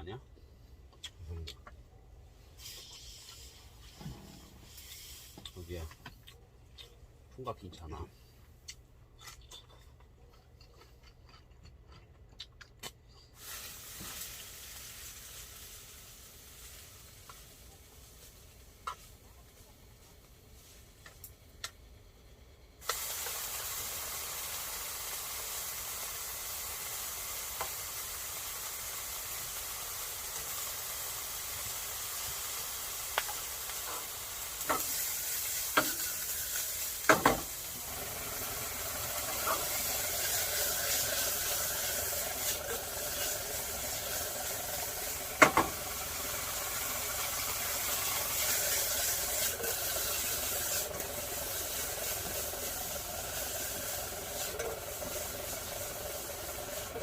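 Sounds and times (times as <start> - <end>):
food sizzling in frying pan: 2.6 - 5.8, 13.4 - 21.4, 22.8 - 57.0.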